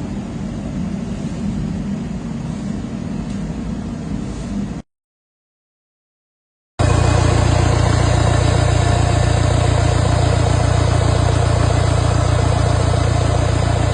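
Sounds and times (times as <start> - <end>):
vehicle engine idling: 6.8 - 13.9.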